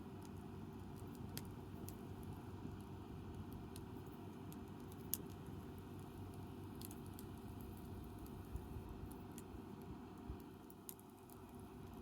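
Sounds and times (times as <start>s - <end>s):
campfire crackling and popping: 2.8s - 12.0s.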